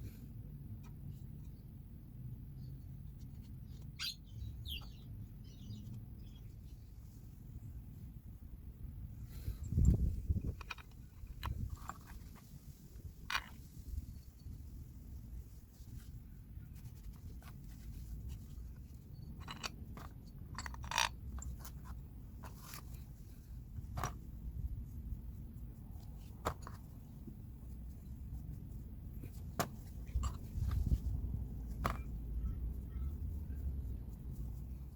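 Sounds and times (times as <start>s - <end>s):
low steady rumble: 0.0s - 34.9s
hand tools and metal parts clinking: 9.4s - 14.6s, 18.3s - 23.4s, 29.7s - 32.2s.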